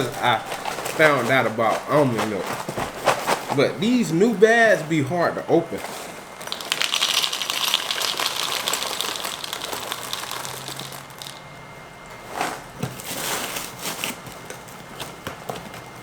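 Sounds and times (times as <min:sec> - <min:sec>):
plastic bag crinkling: 0:00.0 - 0:05.0, 0:05.8 - 0:11.6.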